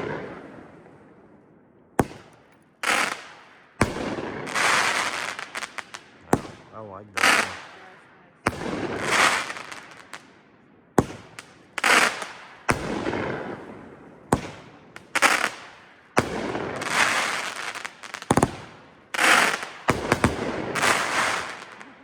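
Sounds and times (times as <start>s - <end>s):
firework bangs: 2.0s - 10.4s, 11.0s - 22.0s
firework hissing crackle: 4.4s - 6.1s, 7.2s - 7.9s, 8.5s - 10.2s, 11.3s - 12.9s, 15.0s - 22.0s.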